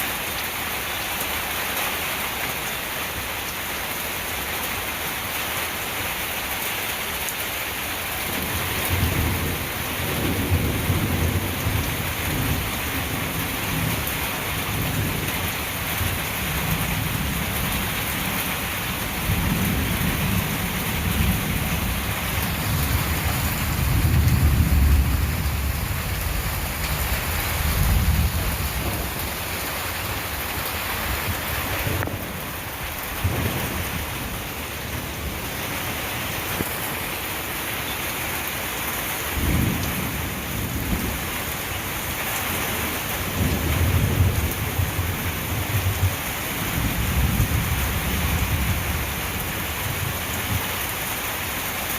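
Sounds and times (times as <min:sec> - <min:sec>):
heavy rain: 0:00.0 - 0:51.9
thunder rolling: 0:19.2 - 0:35.6.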